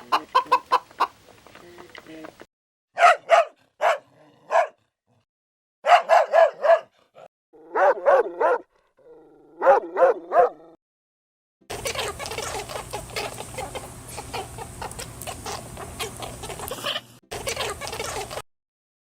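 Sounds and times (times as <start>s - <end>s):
dog barking: 3.0s - 4.8s, 5.8s - 8.7s, 9.6s - 10.8s.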